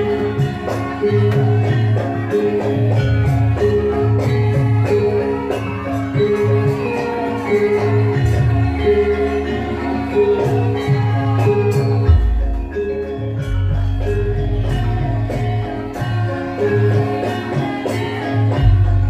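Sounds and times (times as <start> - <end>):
gamelan metallophones: 0.0 - 19.0
steady drum: 12.1 - 16.3.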